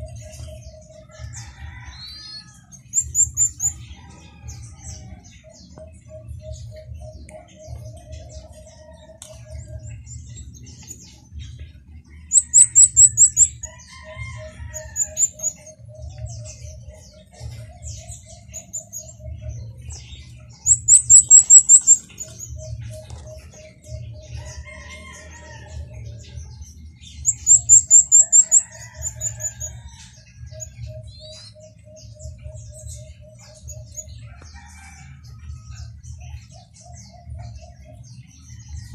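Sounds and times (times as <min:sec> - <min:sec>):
rapid high bird chirps: 0:12.3 - 0:25.2, 0:27.0 - 0:34.8.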